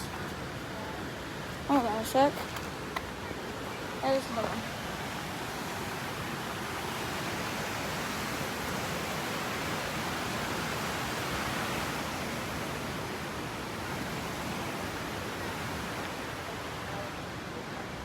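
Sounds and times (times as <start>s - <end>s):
fast-flowing river rushing: 0.0s - 18.0s.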